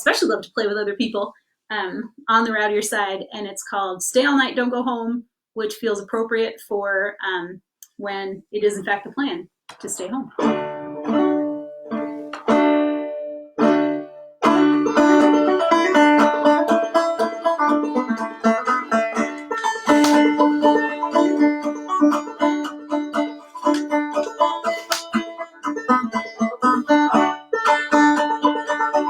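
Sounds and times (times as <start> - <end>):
banjo playing: 9.9 - 29.0.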